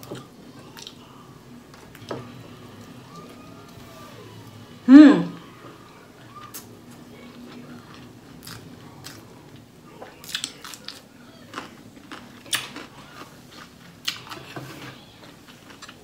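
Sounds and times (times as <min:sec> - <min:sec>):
crunchy chewing: 0:06.3 - 0:16.0.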